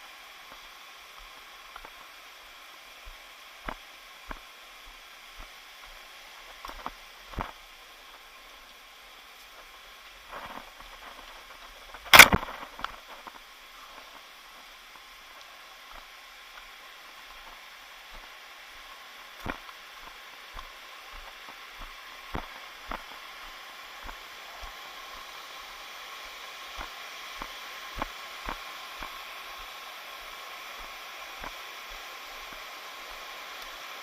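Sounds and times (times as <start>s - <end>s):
waterfall stream rushing: 0.0s - 34.0s.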